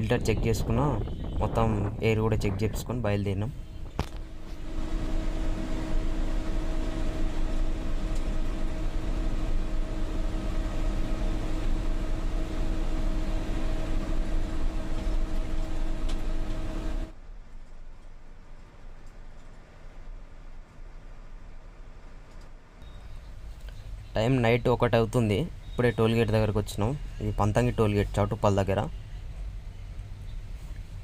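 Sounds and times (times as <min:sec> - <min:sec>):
road and wind noise: 0:00.0 - 0:17.5
low hum: 0:00.0 - 0:31.0
lorry diesel engine droning: 0:03.5 - 0:17.1.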